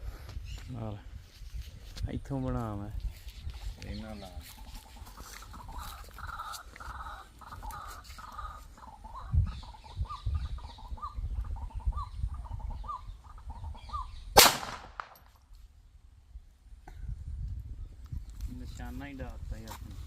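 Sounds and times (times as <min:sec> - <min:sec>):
birds calling: 0:03.2 - 0:15.3
pistol shot: 0:14.4 - 0:15.3.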